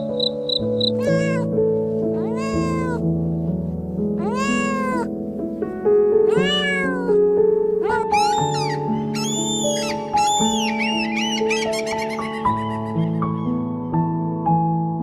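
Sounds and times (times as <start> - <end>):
soft background music: 0.0 - 15.0
cat meowing: 0.8 - 1.5, 2.1 - 3.0, 4.2 - 5.1, 6.2 - 13.2.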